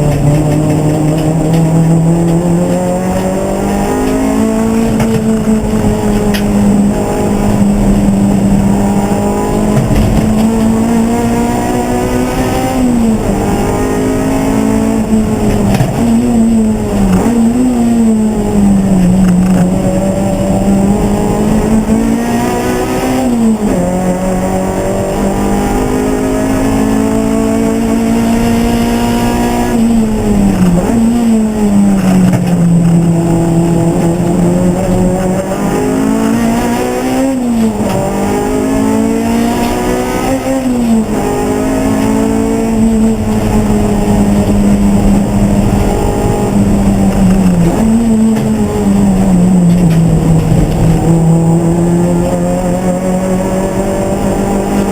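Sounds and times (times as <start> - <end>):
race car engine revving: 0.0 - 54.9.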